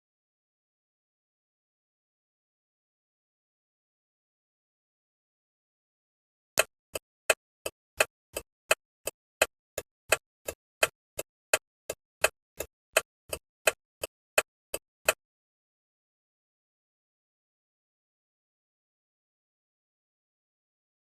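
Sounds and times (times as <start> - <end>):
turn signal indicator ticking: 6.6 - 15.2.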